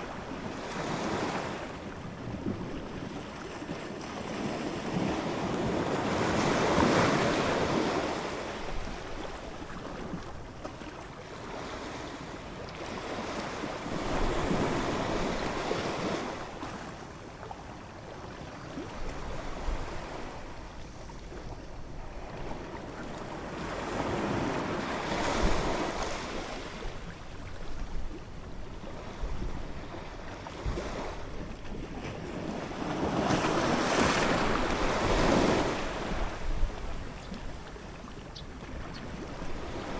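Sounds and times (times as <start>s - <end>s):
ocean waves breaking: 28.9s - 39.9s.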